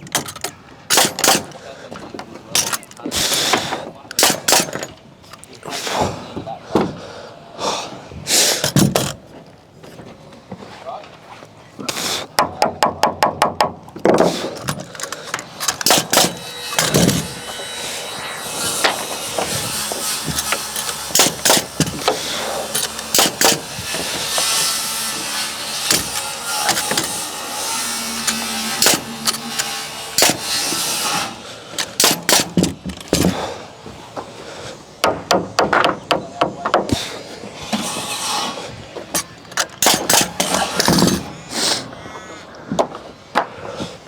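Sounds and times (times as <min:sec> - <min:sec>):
hammer striking timber: 0:00.0 - 0:01.6, 0:12.4 - 0:33.5, 0:35.0 - 0:37.1, 0:39.8 - 0:41.3.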